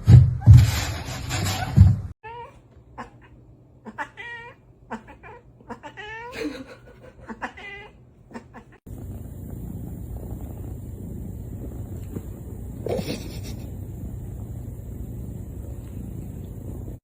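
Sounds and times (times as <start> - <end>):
cat meowing: 2.2 - 6.3, 7.3 - 8.8
steady background hiss: 5.6 - 17.0.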